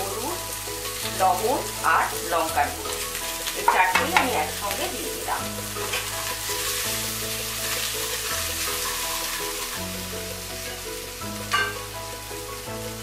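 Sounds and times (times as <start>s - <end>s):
background music: 0.0s - 13.0s
spices sizzling in oil: 0.0s - 13.0s
spatula knocking: 11.4s - 11.9s.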